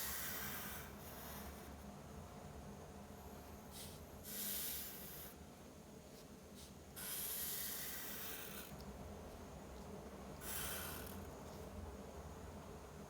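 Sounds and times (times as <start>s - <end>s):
drawing tool scratching paper: 6.6s - 8.7s.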